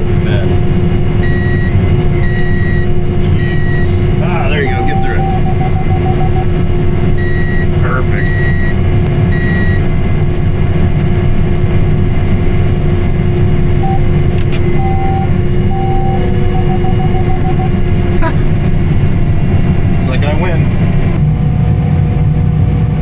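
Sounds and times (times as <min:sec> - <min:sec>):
tractor engine running: 0:00.0 - 0:23.0
short electronic beeps: 0:01.2 - 0:06.5, 0:07.2 - 0:09.9, 0:13.8 - 0:17.8.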